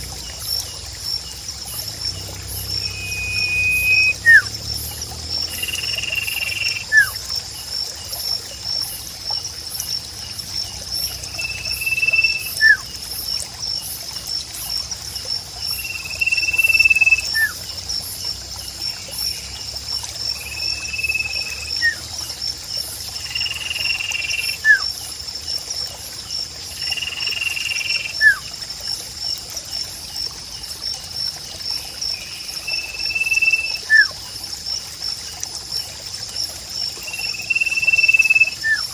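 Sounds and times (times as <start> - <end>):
insect trill: 0.0 - 38.9
trickling water: 0.0 - 38.9
bird whistling call: 2.8 - 4.5, 5.6 - 7.2, 11.4 - 12.8, 16.2 - 17.6, 28.2 - 28.4, 32.8 - 34.1.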